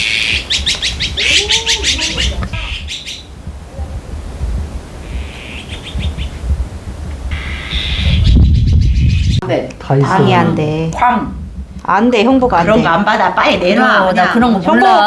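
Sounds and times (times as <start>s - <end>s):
bird chirping trills: 0.0s - 3.4s, 5.0s - 6.4s, 7.3s - 9.4s.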